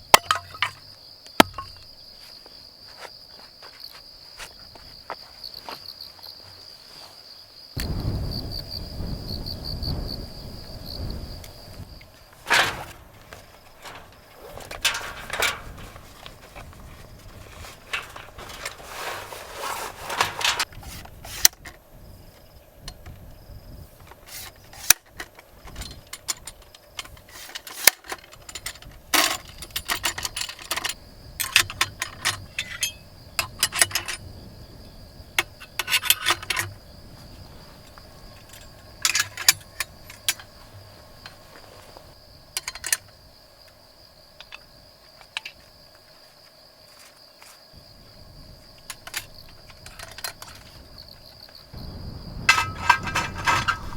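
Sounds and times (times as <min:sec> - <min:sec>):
small hard objects clinking: 0:00.0 - 0:00.8, 0:01.4 - 0:01.9
cricket trill: 0:00.0 - 0:53.9.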